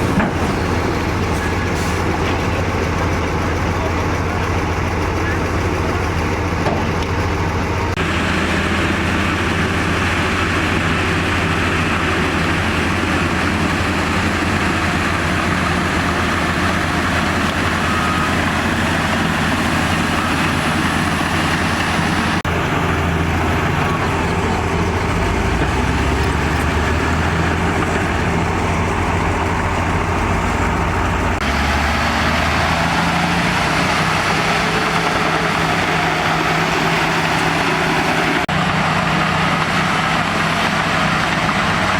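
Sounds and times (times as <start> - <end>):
heavy diesel engines running: 0.0 - 41.9.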